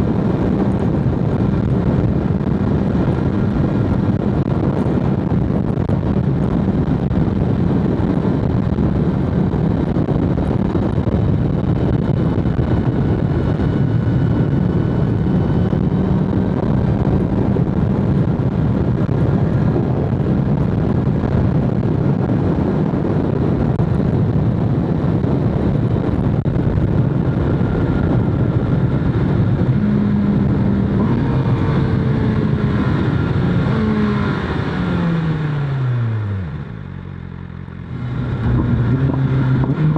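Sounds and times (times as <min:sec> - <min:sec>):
wind rushing: 0:00.0 - 0:37.0
motorcycle engine cruising: 0:00.0 - 0:39.9.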